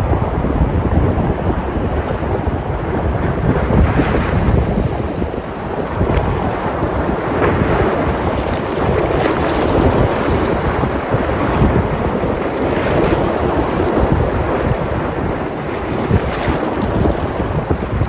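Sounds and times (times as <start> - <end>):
waves breaking: 0.0 - 18.0
wind buffeting microphone: 0.0 - 18.0.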